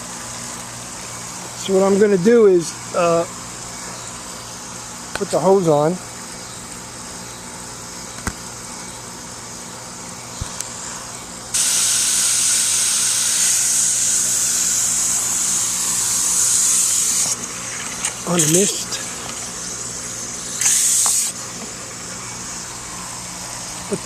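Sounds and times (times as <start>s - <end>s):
hose nozzle spraying water: 11.6s - 19.6s, 20.4s - 21.4s.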